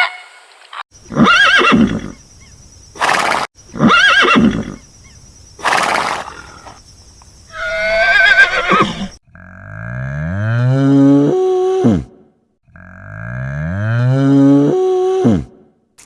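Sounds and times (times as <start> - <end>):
horse whinnying: 1.1 - 2.1, 3.0 - 4.8, 7.5 - 9.2.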